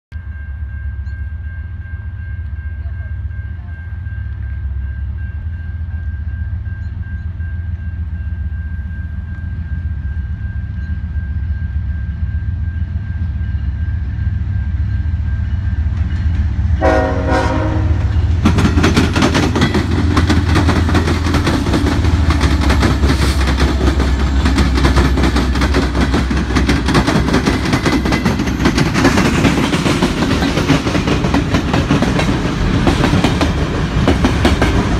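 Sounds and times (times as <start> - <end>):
crossing bell ringing: 0.1 - 34.9
diesel locomotive engine rumble: 0.1 - 34.9
train wheels on rails: 0.2 - 34.9
train horn blast: 16.8 - 18.3.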